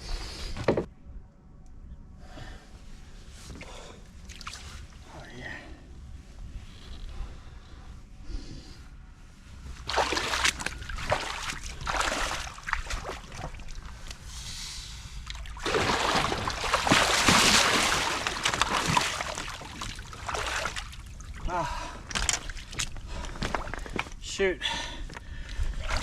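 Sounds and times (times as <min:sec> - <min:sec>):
water splashing against a kayak: 0:09.8 - 0:14.2, 0:15.3 - 0:23.9.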